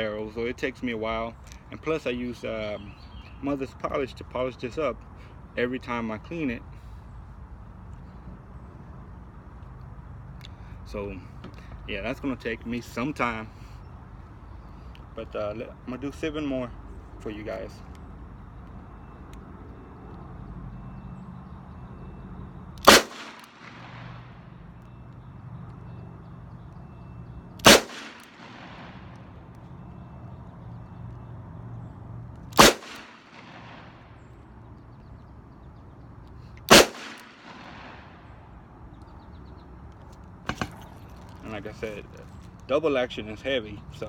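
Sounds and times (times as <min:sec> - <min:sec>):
revolver gunshots: 0:22.8 - 0:24.4, 0:27.6 - 0:29.1, 0:32.5 - 0:34.1, 0:36.7 - 0:38.2.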